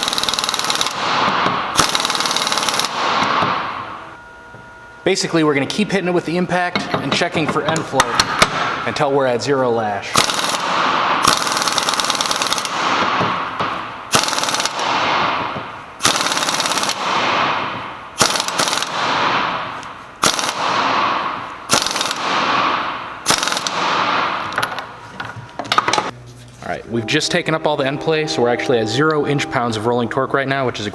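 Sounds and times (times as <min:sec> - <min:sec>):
impact wrench hammering: 0:00.0 - 0:04.6, 0:06.5 - 0:09.1, 0:10.2 - 0:26.1.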